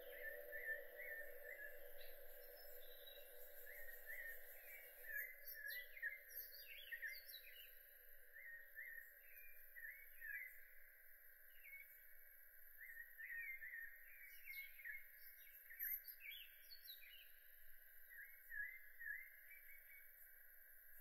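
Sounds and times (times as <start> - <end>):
steady high-pitched hiss: 0.0 - 6.9.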